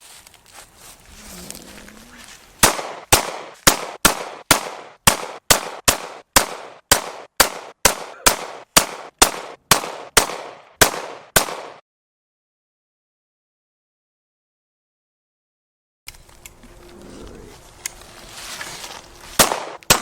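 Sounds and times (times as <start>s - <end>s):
pistol shots: 2.6s - 11.8s, 19.4s - 20.0s.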